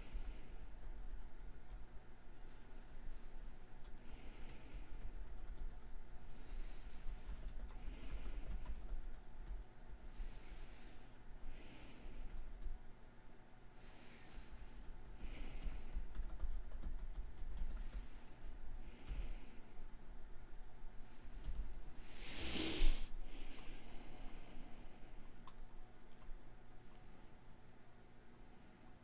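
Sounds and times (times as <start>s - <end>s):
steady low hum: 0.0s - 29.0s
person breathing slowly: 2.3s - 5.6s, 6.2s - 8.9s, 10.0s - 12.5s, 13.7s - 16.3s, 17.5s - 19.9s, 20.9s - 25.4s, 26.8s - 27.6s
computer clicking: 3.8s - 6.0s, 7.0s - 9.6s, 12.2s - 12.8s, 14.8s - 18.1s, 19.0s - 19.3s, 21.4s - 21.7s, 25.4s - 26.4s.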